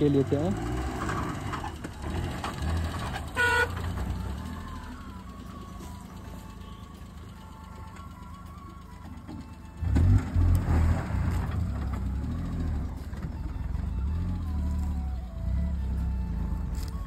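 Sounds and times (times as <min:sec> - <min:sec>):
car engine revving: 0:00.0 - 0:05.3, 0:09.8 - 0:17.0
soft background music: 0:03.9 - 0:17.0.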